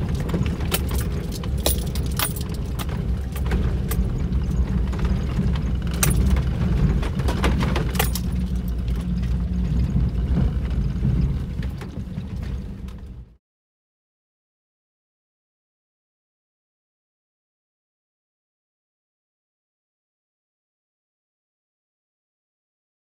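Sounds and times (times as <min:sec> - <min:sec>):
clinks and rattles: 0:00.0 - 0:09.3
car driving rumble: 0:00.0 - 0:13.4.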